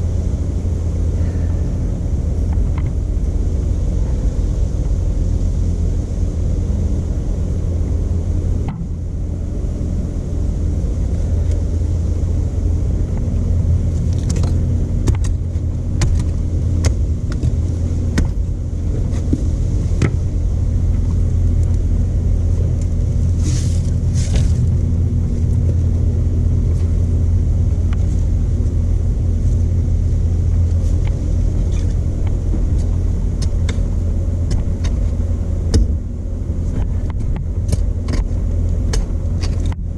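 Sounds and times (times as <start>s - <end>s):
stump grinder engine drone: 0.0s - 39.9s.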